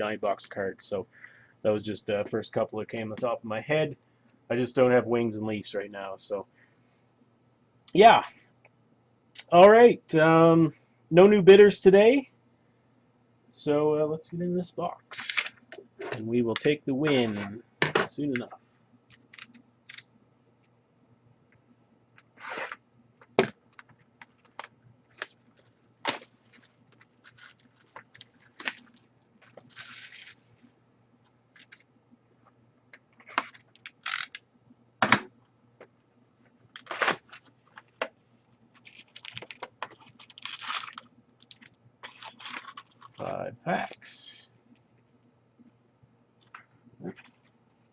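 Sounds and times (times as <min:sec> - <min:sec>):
plastic wrap and cardboard tearing: 0:24.3 - 0:30.5, 0:36.8 - 0:37.3, 0:38.8 - 0:43.3.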